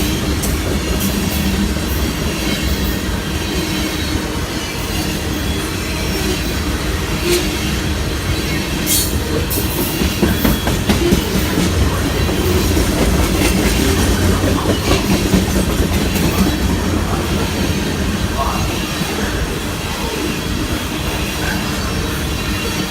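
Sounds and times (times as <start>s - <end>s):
train rumbling on rails: 0.0s - 22.9s
wheels clicking over rail joints: 8.8s - 18.6s.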